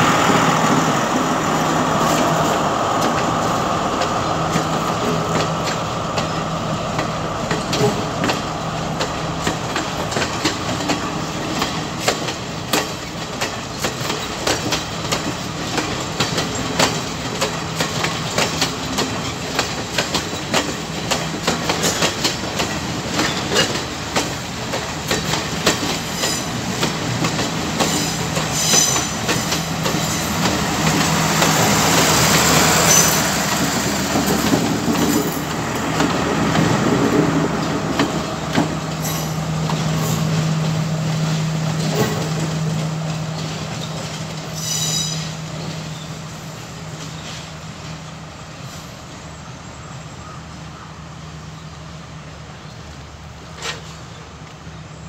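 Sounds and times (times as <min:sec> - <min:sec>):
wheels clicking over rail joints: 0:04.0 - 0:46.1, 0:53.4 - 0:54.6
wheel squeals: 0:26.0 - 0:26.6, 0:27.8 - 0:30.6, 0:32.8 - 0:33.4, 0:43.8 - 0:46.1.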